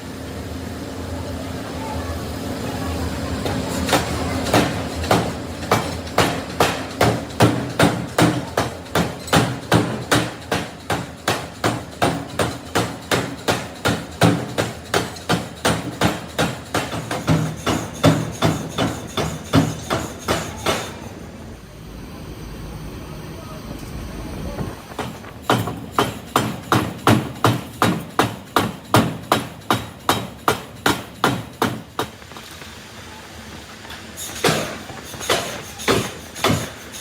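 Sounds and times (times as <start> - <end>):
steady machine hum: 0.0 - 37.0
hammer striking metal: 3.9 - 21.0, 34.4 - 37.0.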